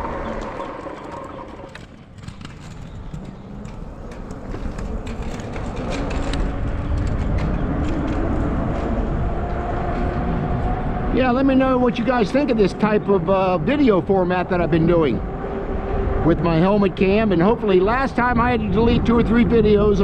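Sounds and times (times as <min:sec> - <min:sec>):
tyre rumble: 0:00.0 - 0:10.8
wind buffeting microphone: 0:00.0 - 0:20.0.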